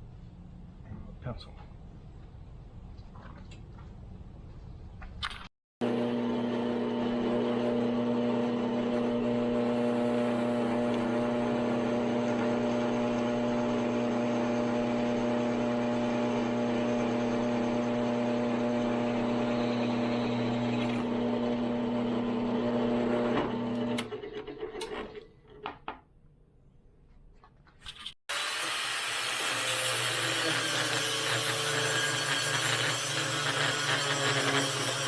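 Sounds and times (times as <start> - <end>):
electric shop tool humming: 5.8 - 24.2, 28.3 - 35.0.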